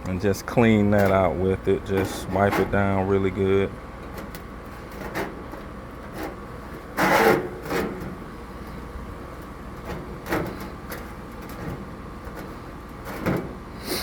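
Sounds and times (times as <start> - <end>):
scrapes and knocks of handling: 4.1 - 8.2.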